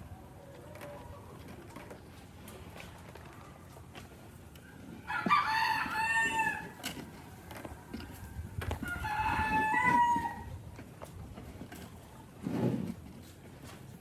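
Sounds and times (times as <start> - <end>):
rooster crowing: 5.1 - 6.8, 8.8 - 10.5.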